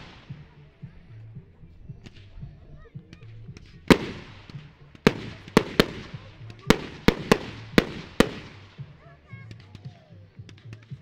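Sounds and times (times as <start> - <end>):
firework shells bursting with echo: 3.2 - 9.9.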